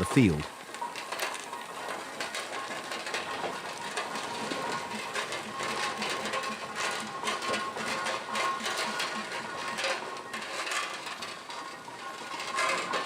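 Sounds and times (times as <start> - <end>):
steam engine mechanical clatter: 0.0 - 13.0.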